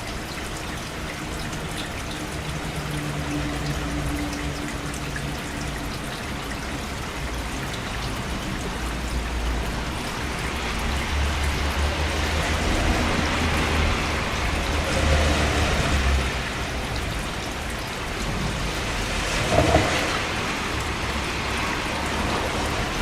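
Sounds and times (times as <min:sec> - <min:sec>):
steady rain: 0:00.0 - 0:23.0
low rumble: 0:19.2 - 0:20.7.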